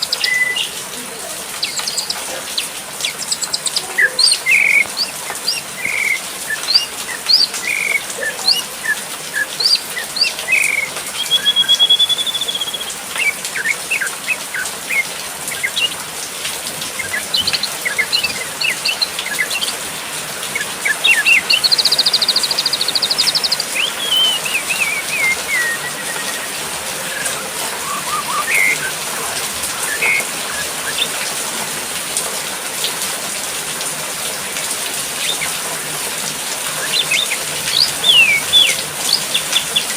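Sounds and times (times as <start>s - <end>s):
songbirds chirping and whistling: 0.0s - 31.8s, 34.3s - 39.9s
falling water hiss: 0.0s - 39.9s.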